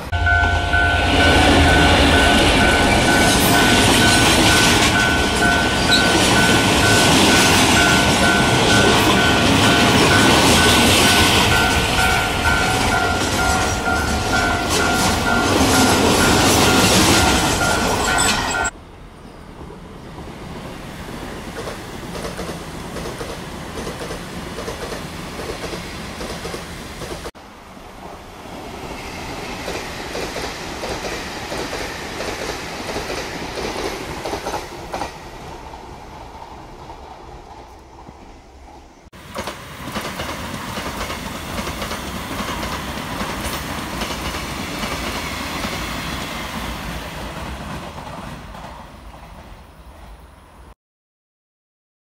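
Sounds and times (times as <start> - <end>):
electric trains passing: 0.0 - 50.8
wheels clicking over rail joints: 21.6 - 27.3.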